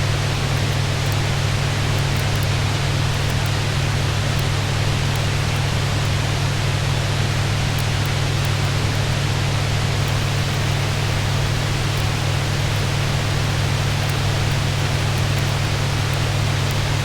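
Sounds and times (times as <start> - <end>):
fireplace crackles: 10.0 - 17.0
rain drumming on a roof: 10.0 - 17.0.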